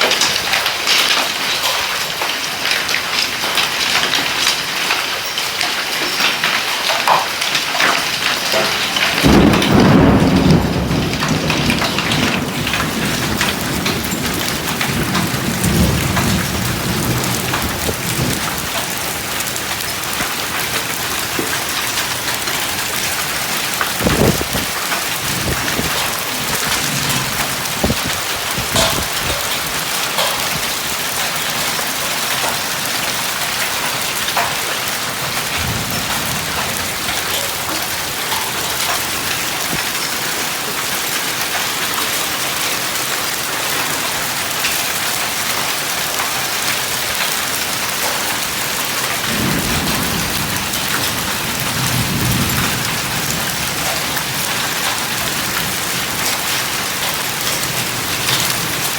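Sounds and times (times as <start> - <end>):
heavy rain pouring: 0.0 - 58.9
low rumble of thunder: 8.5 - 40.1, 48.3 - 58.9.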